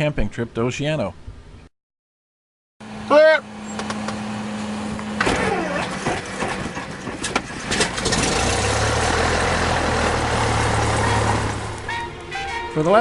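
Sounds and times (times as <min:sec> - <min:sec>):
piston engine starting and idling: 0:03.6 - 0:12.6.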